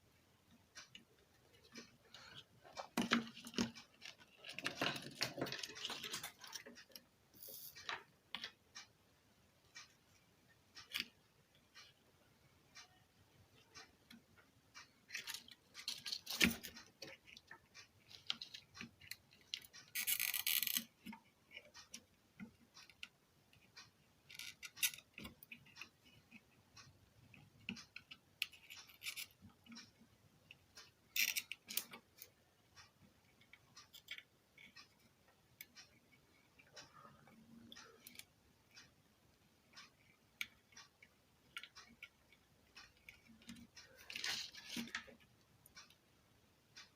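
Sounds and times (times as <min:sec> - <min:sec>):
hand tools clicking and tapping: 0:00.8 - 0:08.6, 0:15.0 - 0:23.7, 0:27.2 - 0:32.4, 0:39.9 - 0:45.2.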